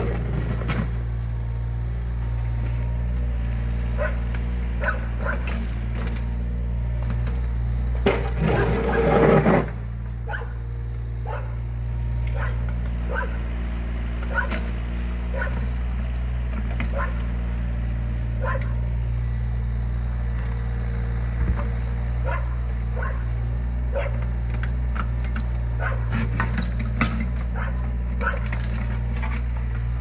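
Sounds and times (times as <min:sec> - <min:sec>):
diesel engine running: 0:00.0 - 0:30.0
dog barking and yipping: 0:04.0 - 0:05.5, 0:10.2 - 0:10.6, 0:11.2 - 0:11.6, 0:12.3 - 0:13.4, 0:14.3 - 0:14.6, 0:15.3 - 0:15.7, 0:16.9 - 0:17.3, 0:18.4 - 0:18.8, 0:22.2 - 0:23.3, 0:23.9 - 0:24.3, 0:25.8 - 0:26.2, 0:27.5 - 0:28.6.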